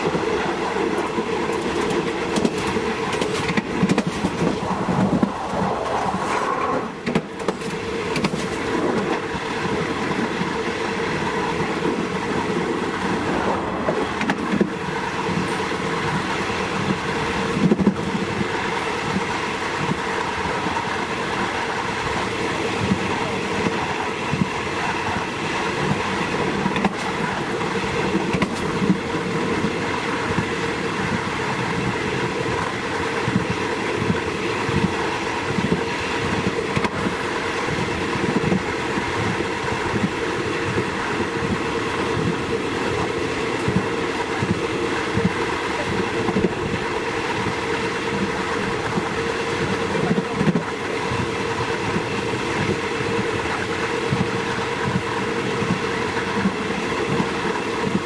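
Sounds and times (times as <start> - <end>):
train running noise with hum: 0.0 - 58.0.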